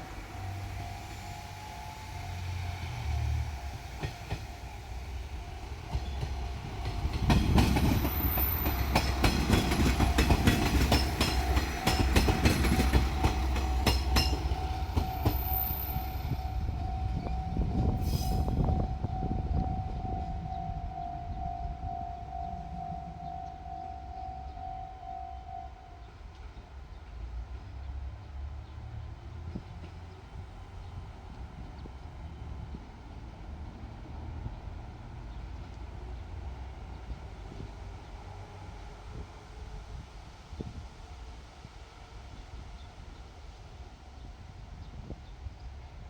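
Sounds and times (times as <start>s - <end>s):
crossing warning bell ringing: 0.0s - 26.4s
diesel train engine rumble: 0.0s - 46.0s
train wheels clacking over rail joints: 2.3s - 16.3s.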